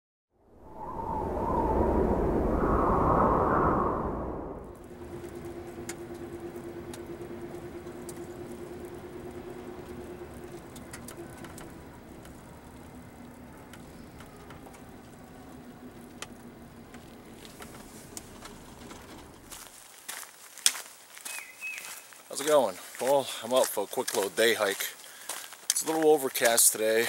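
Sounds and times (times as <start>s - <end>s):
low rumble: 0.4s - 19.6s
distant engine hum: 0.5s - 19.6s.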